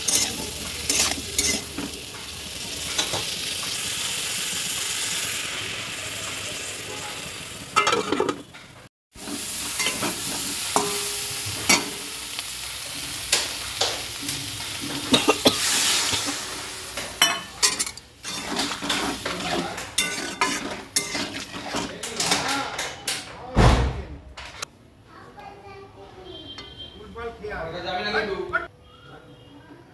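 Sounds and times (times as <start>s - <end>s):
metal spatula scraping a pan: 0.0s - 2.0s, 7.8s - 8.6s, 9.2s - 12.2s, 14.2s - 22.5s
vegetables sizzling in a pan: 0.0s - 22.5s.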